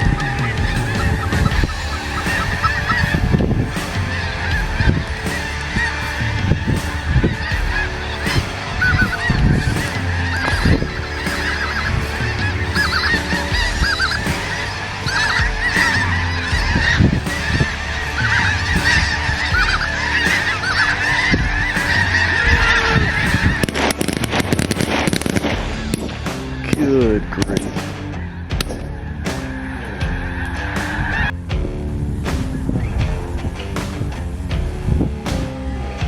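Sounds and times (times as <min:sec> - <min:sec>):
geese flock calling: 0:00.0 - 0:25.5
sharp cracks: 0:00.0 - 0:36.0.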